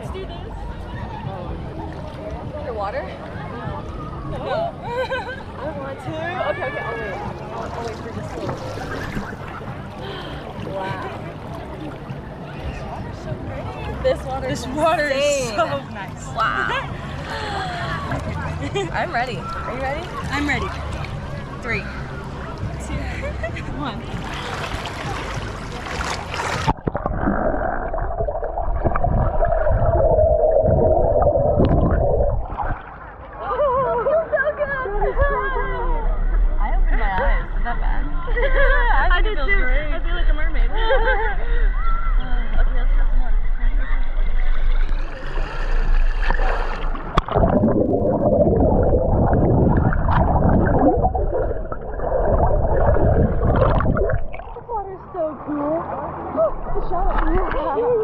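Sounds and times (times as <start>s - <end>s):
splash: 7.4s - 9.7s, 24.2s - 33.4s, 44.8s - 54.7s
underwater rumbling and gurgling: 24.1s - 34.2s, 42.7s - 58.0s
underwater clicks: 46.2s - 54.6s.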